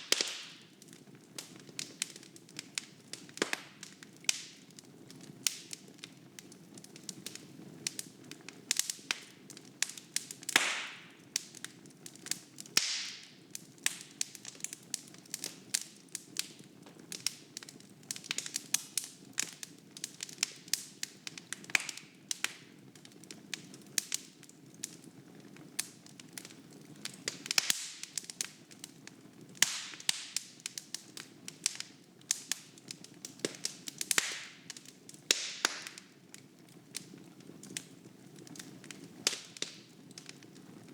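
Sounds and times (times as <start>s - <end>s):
logs crackling and popping: 0.0s - 40.9s.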